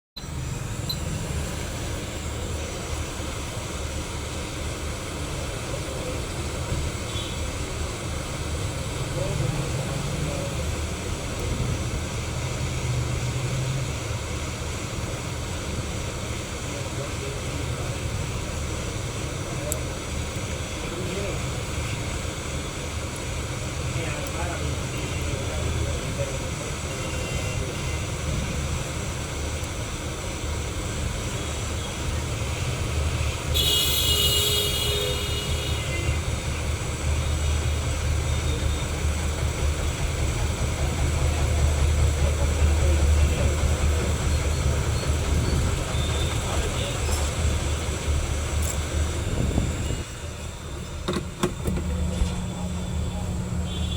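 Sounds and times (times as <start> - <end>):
hot air station blowing: 24.7 - 53.9.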